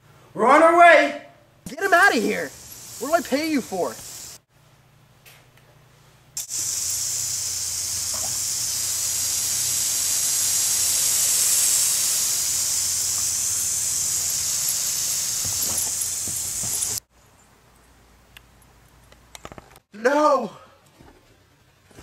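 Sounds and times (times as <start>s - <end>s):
garden hose spraying water: 1.7s - 4.5s, 6.4s - 17.1s.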